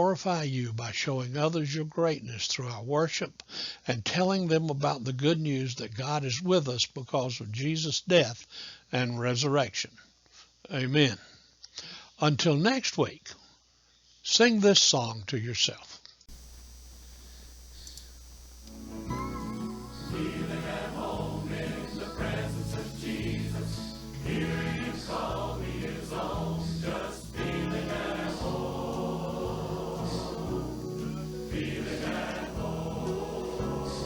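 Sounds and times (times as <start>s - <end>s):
choir singing gospel song: 18.9s - 34.0s.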